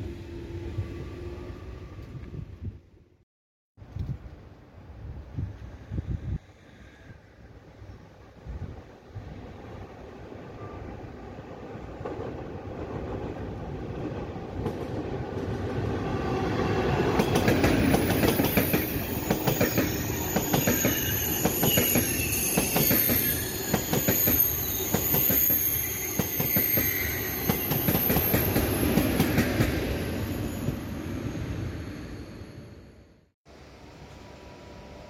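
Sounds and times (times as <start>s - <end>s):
train rumble: 11.7s - 31.9s.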